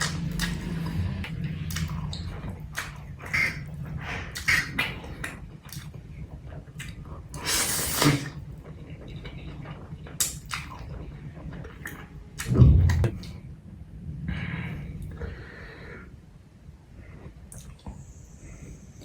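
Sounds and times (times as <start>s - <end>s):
wet chewing and mouth smacks: 0.0s - 13.4s, 17.5s - 18.0s.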